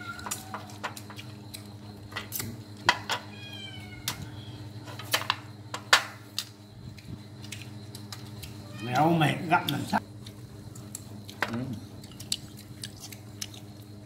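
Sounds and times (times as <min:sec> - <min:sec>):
cat meowing: 0:00.0 - 0:00.5, 0:03.2 - 0:04.6, 0:08.6 - 0:09.1
steady low hum: 0:00.0 - 0:14.0.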